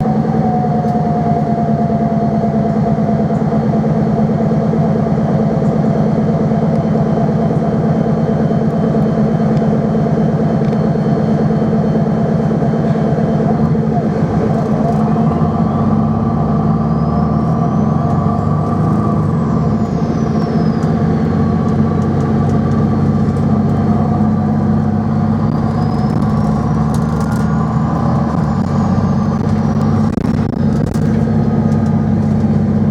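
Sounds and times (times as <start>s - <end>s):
higher whine: 0.0s - 32.9s
tram rumble: 0.0s - 32.9s
electric motor whine: 13.5s - 32.8s.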